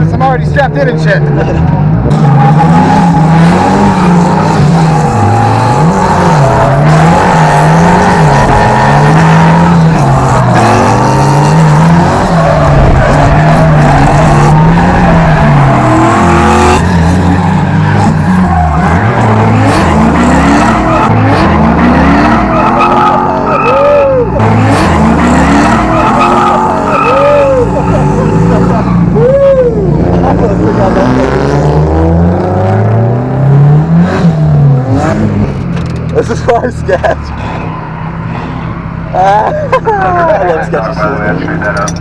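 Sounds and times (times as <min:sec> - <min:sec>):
car engine revving: 0:00.0 - 0:39.3
tyres squealing: 0:02.1 - 0:21.4, 0:22.0 - 0:31.2.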